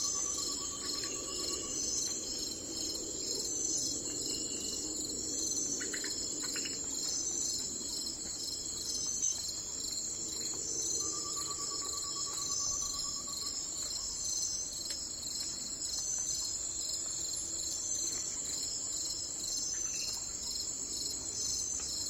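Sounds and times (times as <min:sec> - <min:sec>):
pulsed insect trill: 0:00.0 - 0:07.6
crickets chirping: 0:00.0 - 0:22.0.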